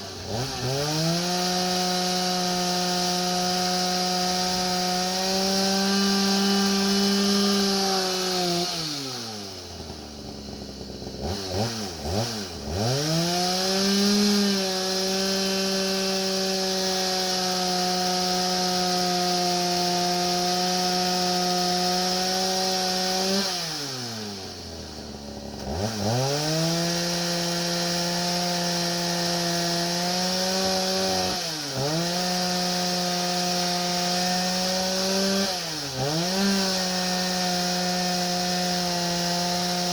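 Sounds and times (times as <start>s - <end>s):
chainsaw ripping through wood: 0.0s - 39.9s.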